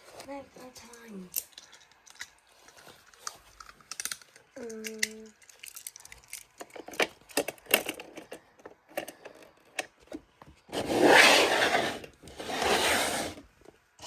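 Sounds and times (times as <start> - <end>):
toys clicking: 3.2 - 9.9
toys scraping: 10.7 - 13.5.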